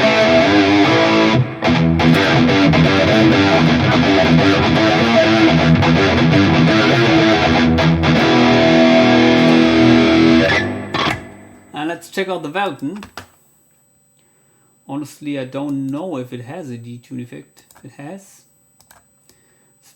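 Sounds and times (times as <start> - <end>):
electric guitar with detune effect: 0.0 - 12.1.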